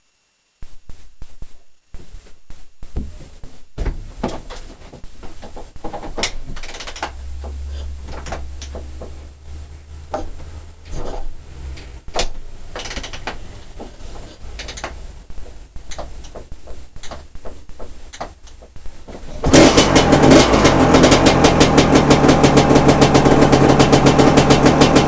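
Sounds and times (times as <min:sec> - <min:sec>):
dirt bike kick-start clunks: 0:11.8 - 0:13.4.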